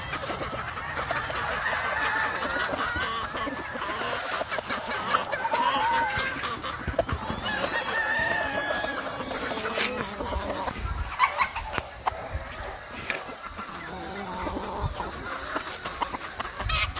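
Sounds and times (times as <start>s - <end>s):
chickens clucking: 0.0s - 16.9s
roosters crowing: 0.0s - 16.9s.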